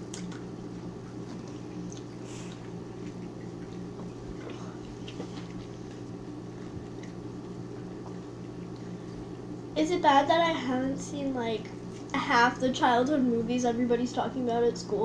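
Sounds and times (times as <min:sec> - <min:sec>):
soft squishy eating sounds: 0:00.0 - 0:09.4, 0:11.6 - 0:12.2
steady low hum: 0:00.0 - 0:15.0.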